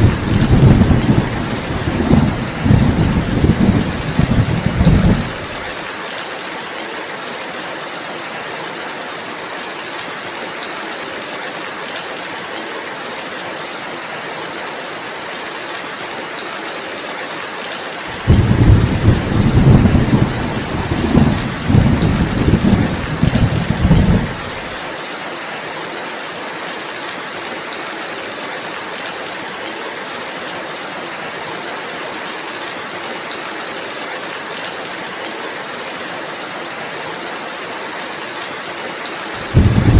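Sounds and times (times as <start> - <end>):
thunder rolling: 0.0 - 5.4, 18.1 - 24.6, 39.4 - 39.9
steady rainfall: 0.0 - 39.9.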